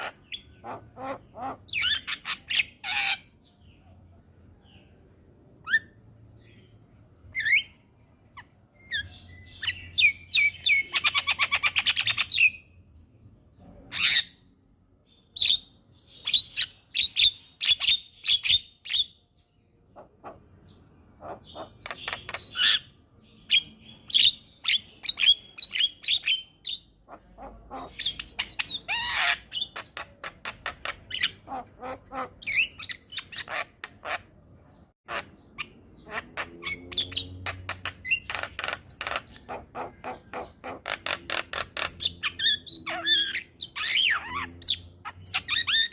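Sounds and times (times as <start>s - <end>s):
bird song whistles and chirps: 5.6s - 7.9s, 8.7s - 12.7s, 40.1s - 45.9s.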